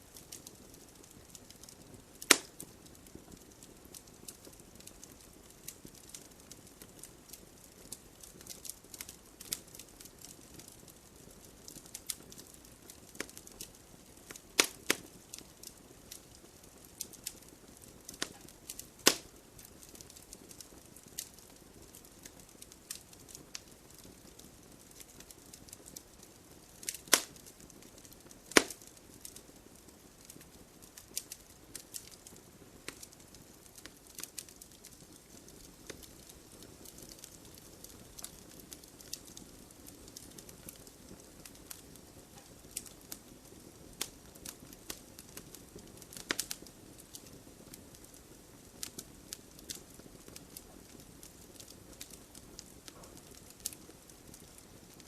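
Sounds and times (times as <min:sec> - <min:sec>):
wood fire crackling: 0:00.0 - 0:55.0
loud wood snaps: 0:02.2 - 0:02.5, 0:14.6 - 0:15.0, 0:19.0 - 0:19.3, 0:26.9 - 0:27.4, 0:28.5 - 0:28.8.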